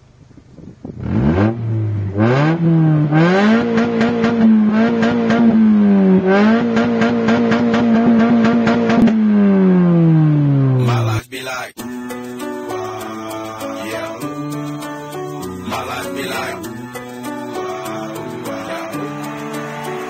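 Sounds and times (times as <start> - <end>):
four-cylinder engine revving: 0.8 - 10.8.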